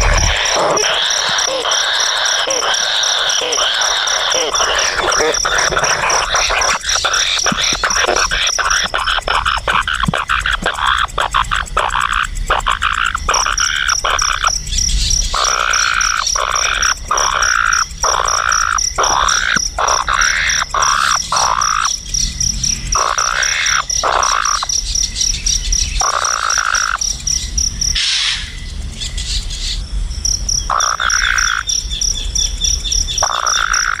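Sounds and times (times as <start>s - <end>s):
frogs croaking: 0.0s - 34.0s
pulsing insect trill: 0.0s - 34.0s.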